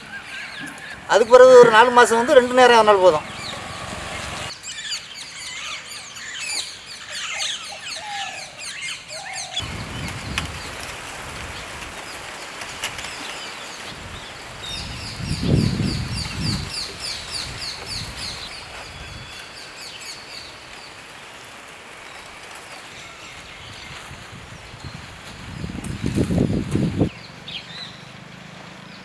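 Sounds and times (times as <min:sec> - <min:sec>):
bird calling high falling notes: 0:00.0 - 0:04.5
outdoor background noise: 0:00.0 - 0:29.0.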